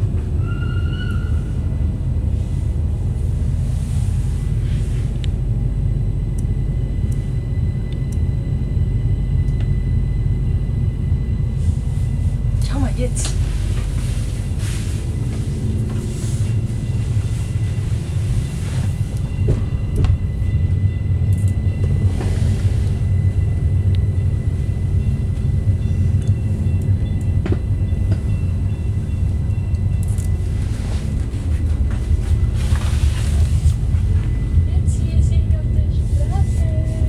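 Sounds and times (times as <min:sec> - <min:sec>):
train interior rumble: 0:00.0 - 0:37.0.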